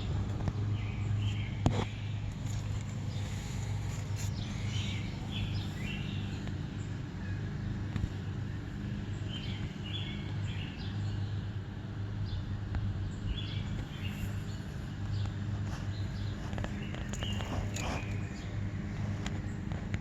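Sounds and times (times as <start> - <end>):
steady low hum: 0.0 - 20.0
bird chirping: 0.7 - 7.5, 12.2 - 18.7.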